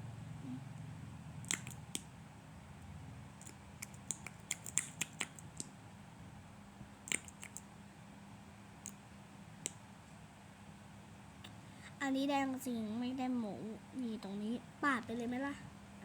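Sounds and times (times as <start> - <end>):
low steady hum: 0.0 - 16.0
small items clicking when handled: 3.4 - 5.7.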